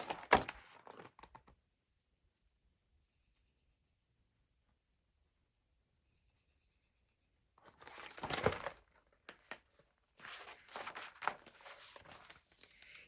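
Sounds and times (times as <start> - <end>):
paper pages rustling: 0.0 - 1.4, 7.6 - 13.0.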